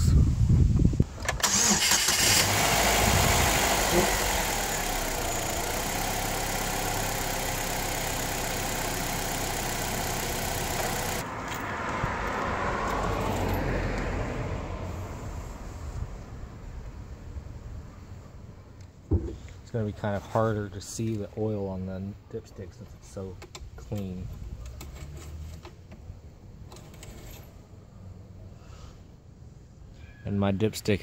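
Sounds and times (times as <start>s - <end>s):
car engine starting and idling: 1.2s - 11.3s.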